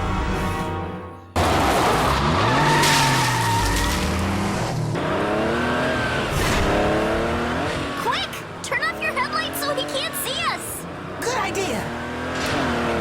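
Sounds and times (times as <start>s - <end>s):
music: 0.0s - 1.4s
car engine revving: 1.4s - 13.0s
tyres squealing: 2.2s - 4.2s.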